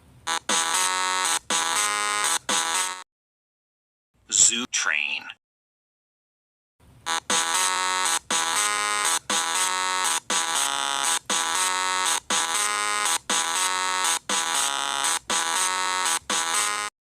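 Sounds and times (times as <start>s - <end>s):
electronic ringing alarm tone: 0.3s - 3.0s, 7.1s - 16.9s.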